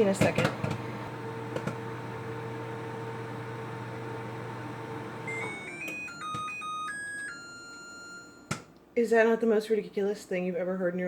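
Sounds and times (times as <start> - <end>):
microwave humming: 0.0 - 8.9
electronic beeping tune: 5.3 - 8.5.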